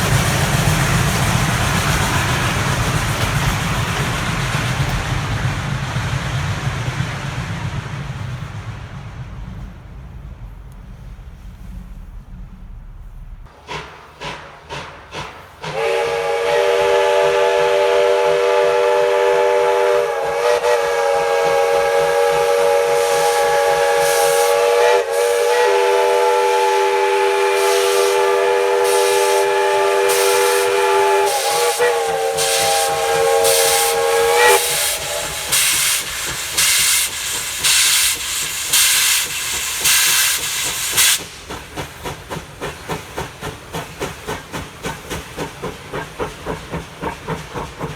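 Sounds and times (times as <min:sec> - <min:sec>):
locomotive exhaust chuffing: 0:00.0 - 0:47.9
steam locomotive chime whistle: 0:13.6 - 0:41.4.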